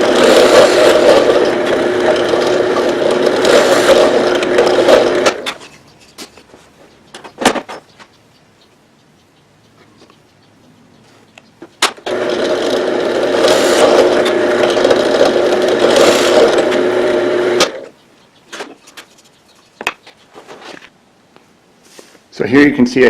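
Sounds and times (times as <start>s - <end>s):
electric drill boring wood: 0.0s - 5.6s, 12.0s - 17.9s.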